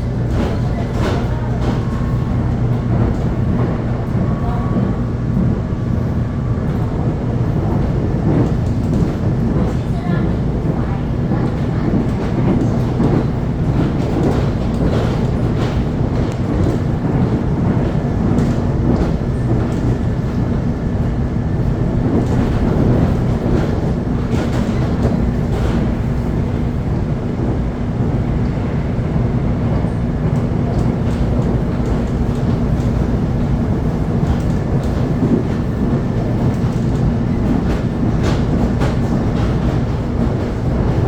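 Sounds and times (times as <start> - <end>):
train rumble and hum: 0.0 - 41.0
wheels clicking on track: 30.3 - 41.0.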